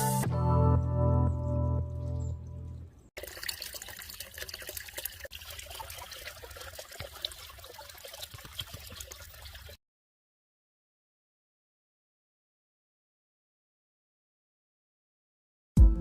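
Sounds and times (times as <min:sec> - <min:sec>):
water trickling: 0:01.8 - 0:09.8.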